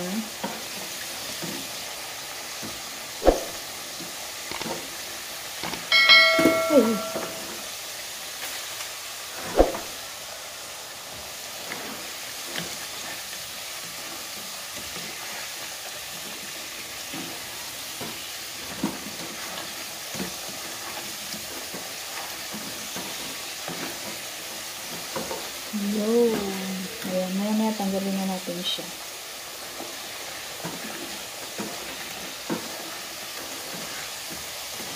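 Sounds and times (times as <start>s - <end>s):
food frying in hot oil: 0.0s - 34.9s.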